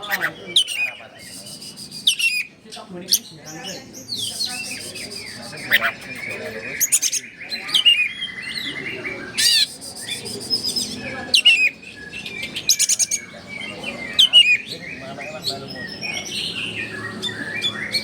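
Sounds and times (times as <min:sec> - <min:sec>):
bird singing varied song: 0:00.0 - 0:18.0
sharp downward-slurred whistles: 0:01.3 - 0:02.2.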